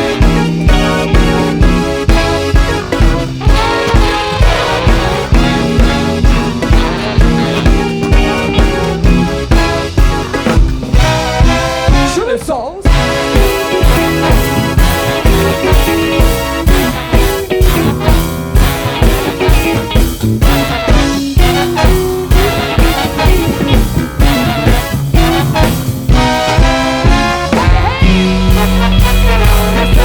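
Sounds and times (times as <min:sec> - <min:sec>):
funk band playing: 0:00.0 - 0:30.0.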